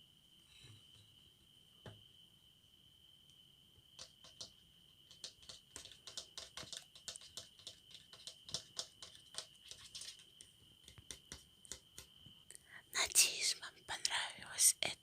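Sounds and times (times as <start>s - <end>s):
faint high-pitched whine: 0.0s - 15.0s
tapping on plastic hair dryer: 4.0s - 4.5s, 5.1s - 9.5s.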